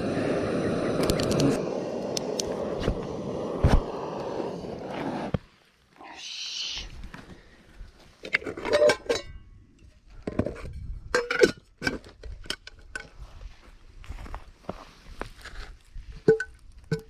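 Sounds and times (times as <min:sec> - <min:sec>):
metal cookware clinking and clattering: 0:08.4 - 0:09.4, 0:10.6 - 0:12.8.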